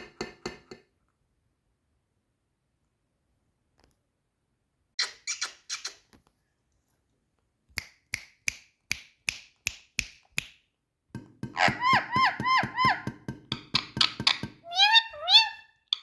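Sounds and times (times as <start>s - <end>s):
parakeet clicking calls: 11.6s - 16.0s.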